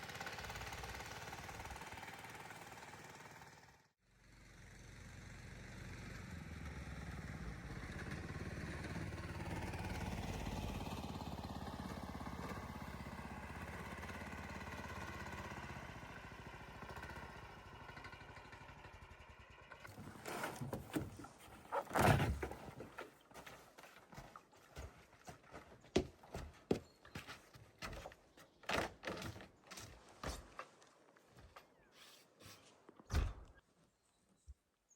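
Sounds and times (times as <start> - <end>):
small engine running: 0.0 - 20.8.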